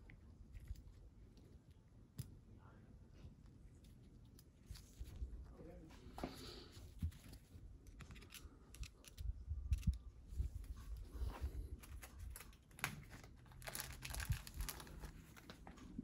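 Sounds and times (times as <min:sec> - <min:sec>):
small parts clicking and tapping: 0:07.8 - 0:10.1
plastic packaging crinkling and tearing: 0:11.8 - 0:15.7.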